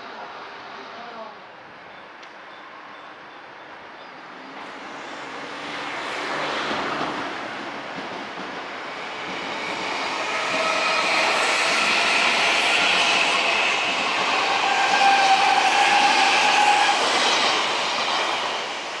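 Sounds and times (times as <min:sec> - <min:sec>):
train running past: 0:03.8 - 0:19.0
train whine: 0:04.4 - 0:19.0.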